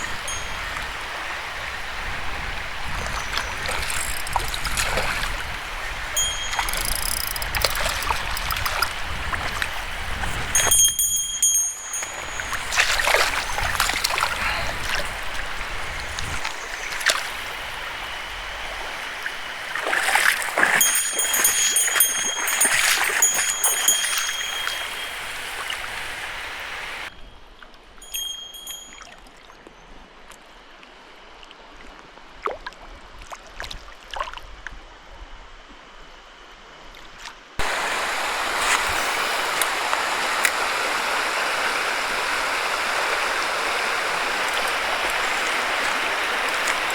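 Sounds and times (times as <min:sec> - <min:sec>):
mountain stream running: 0:00.0 - 0:27.1, 0:37.5 - 0:46.9
clicks and rustles: 0:06.6 - 0:08.9.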